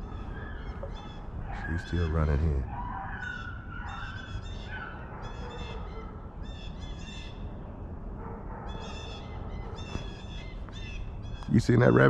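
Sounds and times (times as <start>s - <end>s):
hounds yelping and bawling: 2.7s - 6.2s.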